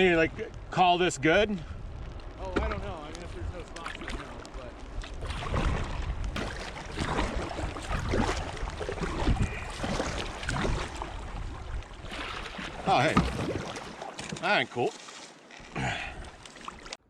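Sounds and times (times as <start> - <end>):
wind rumble on microphone: 0.0 - 13.8
water noise: 0.0 - 17.0
paddle splashing in water: 3.7 - 17.0.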